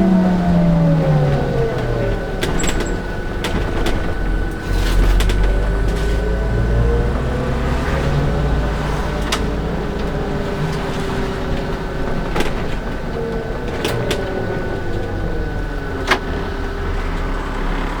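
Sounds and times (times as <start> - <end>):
bus engine drone: 0.0 - 18.0
drivetrain whine: 0.0 - 18.0
body knocks and rattles: 1.3 - 6.7, 9.2 - 16.2.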